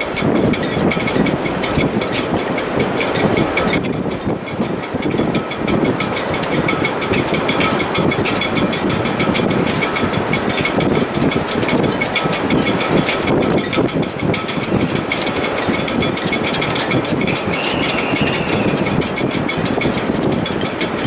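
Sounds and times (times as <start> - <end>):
loud surging wind: 0.0 - 21.0
rigging rattling: 0.0 - 21.0
faint whistle: 17.3 - 19.0.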